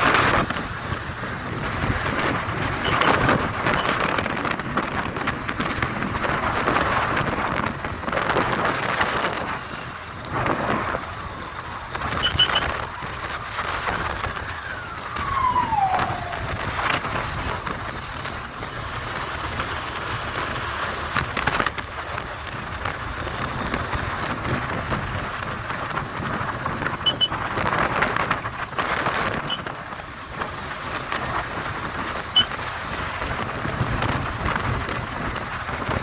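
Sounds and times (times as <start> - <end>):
wind buffeting microphone: 0.0 - 36.0
falling tone: 14.6 - 16.8.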